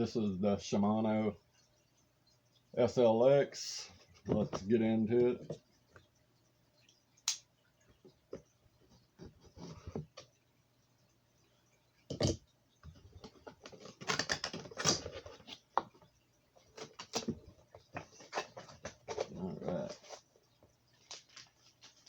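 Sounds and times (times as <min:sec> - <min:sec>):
clicks and taps of packaging: 0:13.2 - 0:16.0.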